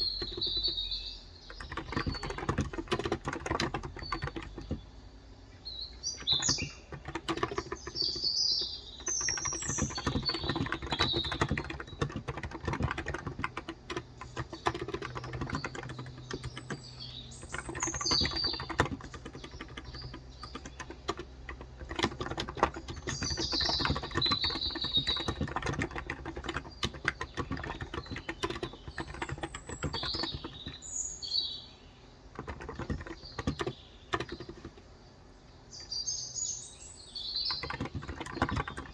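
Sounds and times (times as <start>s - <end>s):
soft keyboard typing: 0.0s - 5.0s, 5.9s - 30.9s, 32.3s - 35.0s, 37.2s - 38.9s
birds chirping: 0.0s - 38.9s.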